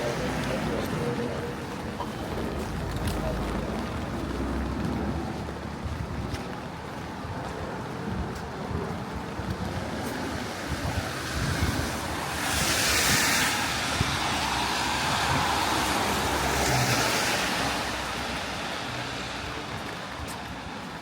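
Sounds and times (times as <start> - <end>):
tyre hiss on wet road: 10.1 - 20.8.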